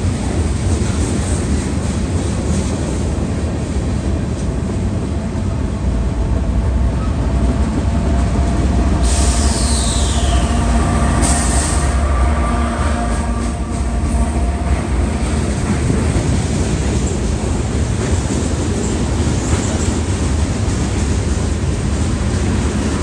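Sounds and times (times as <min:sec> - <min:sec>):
freight cars rumbling on rails: 0:00.0 - 0:23.0
high squeal falling in pitch: 0:09.2 - 0:12.4.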